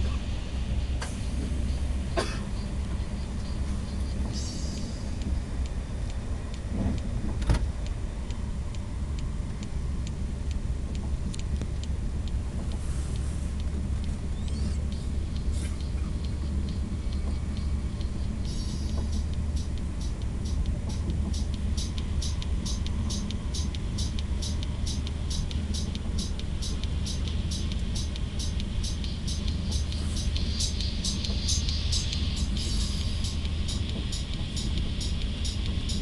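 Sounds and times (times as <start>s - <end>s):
train rumble inside carriage: 0.0s - 36.0s
light regular ticking: 2.7s - 36.0s.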